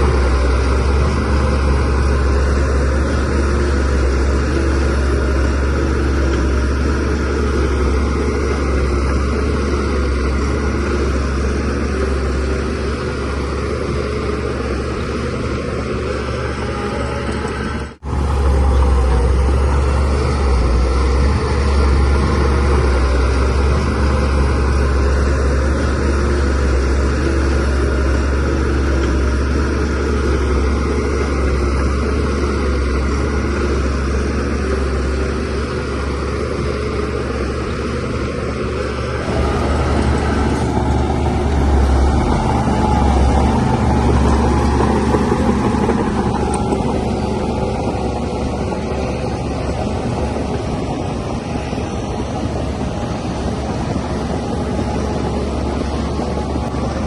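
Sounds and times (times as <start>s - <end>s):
bulldozer diesel engine rumbling: 0.0s - 57.0s.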